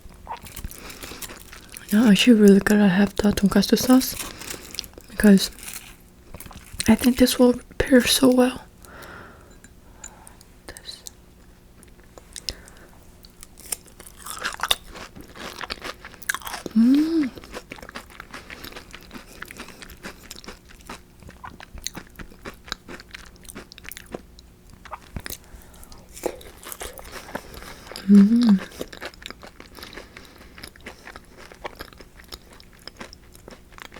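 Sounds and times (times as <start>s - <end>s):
crunchy biting and chewing: 0.3s - 1.9s, 13.2s - 33.9s
person humming: 16.7s - 17.4s, 28.0s - 28.8s.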